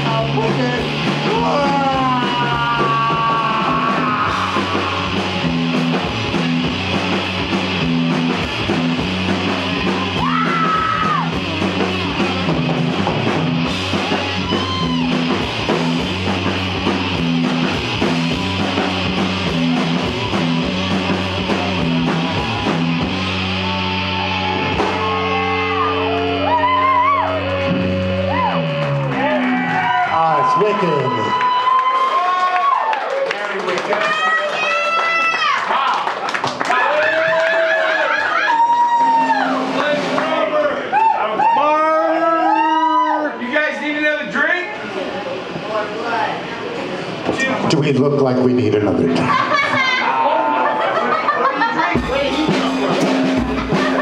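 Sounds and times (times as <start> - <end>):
live rock band playing: 0.0 - 32.3, 38.0 - 41.0, 51.8 - 54.0.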